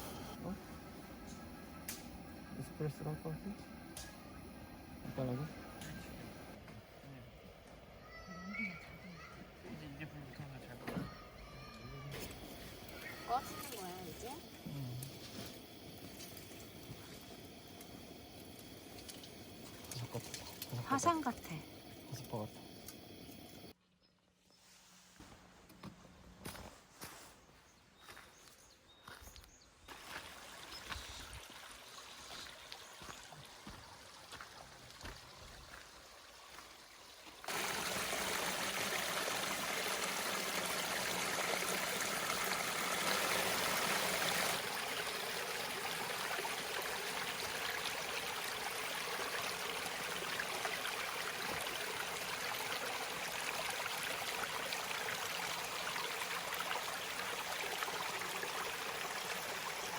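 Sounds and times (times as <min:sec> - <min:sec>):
stream rushing over rocks: 0:29.9 - 0:59.9.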